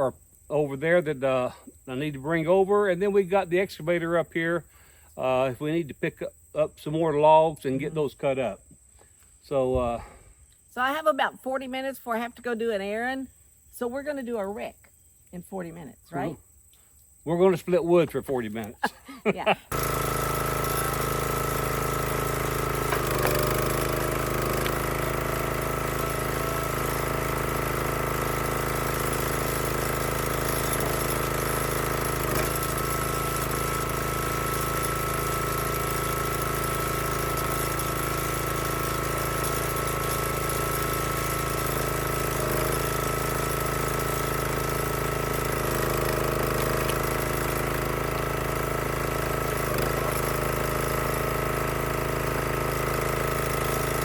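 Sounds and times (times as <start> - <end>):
log splitter engine running: 19.7 - 54.0.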